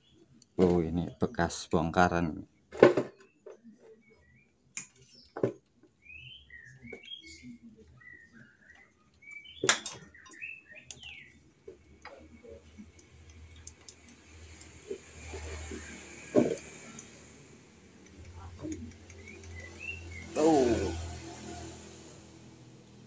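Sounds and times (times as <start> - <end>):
small bird chirping: 6.0 - 14.2, 18.0 - 20.4.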